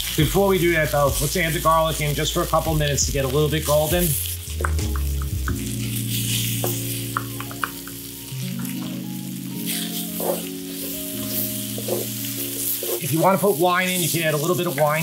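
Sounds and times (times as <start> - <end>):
vegetables sizzling in oil: 0.0 - 15.0
soft background music: 0.1 - 15.0
wooden spoon scraping pan: 9.7 - 13.5.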